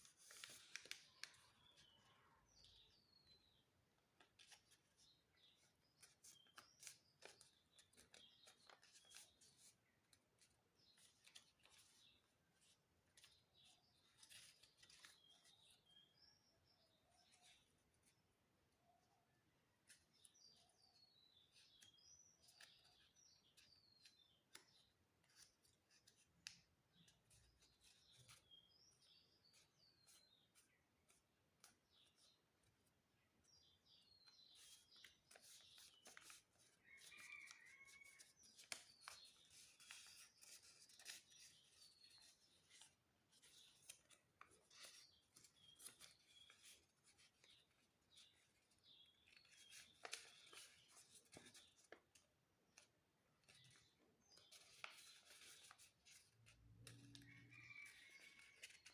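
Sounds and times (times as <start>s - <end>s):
paper crinkling: 0.0s - 1.9s, 4.2s - 15.9s, 34.5s - 58.9s
small birds chirping: 0.0s - 58.9s.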